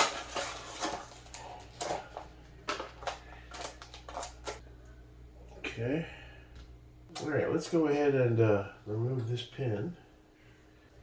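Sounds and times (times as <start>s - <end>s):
packaging clicks and rustles: 0.0s - 4.6s
faint low hum: 0.0s - 11.0s.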